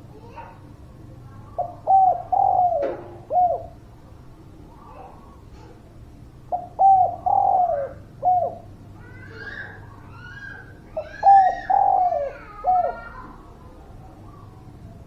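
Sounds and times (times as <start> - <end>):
dove cooing: 1.6 - 3.8, 6.5 - 13.4.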